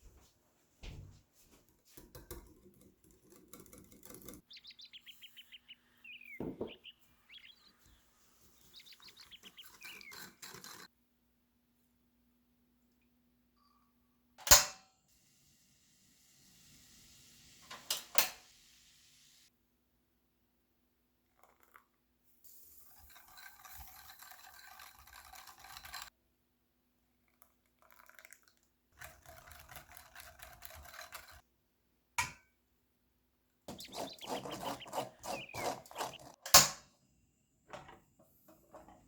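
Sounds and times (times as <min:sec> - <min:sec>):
rough scraping noise: 0:33.7 - 0:36.4
utensils knocking: 0:33.7 - 0:36.8.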